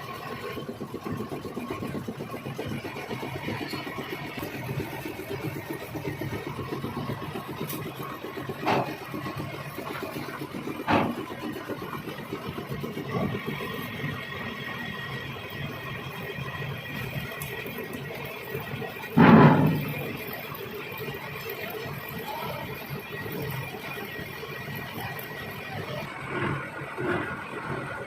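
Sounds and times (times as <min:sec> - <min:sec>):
metal lathe rattling: 0:01.8 - 0:23.6
sharp metallic clanks: 0:19.2 - 0:20.3.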